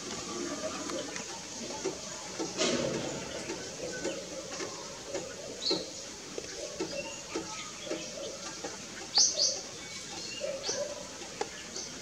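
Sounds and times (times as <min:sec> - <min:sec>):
soft low ticks: 0:03.4 - 0:12.0.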